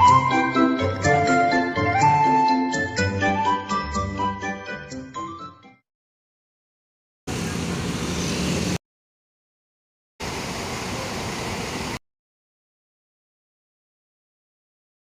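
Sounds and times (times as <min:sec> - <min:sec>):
vehicle engine humming: 0:07.3 - 0:08.8, 0:10.2 - 0:12.0.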